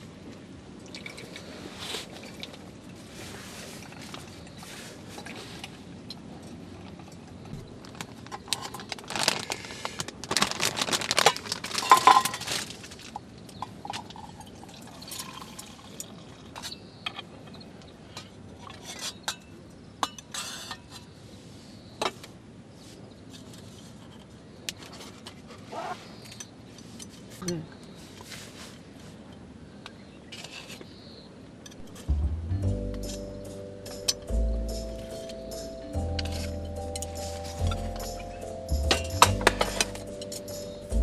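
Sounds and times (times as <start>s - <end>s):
liquid poured into a cup: 0.8s - 1.6s
tableware clinking: 34.8s - 40.8s.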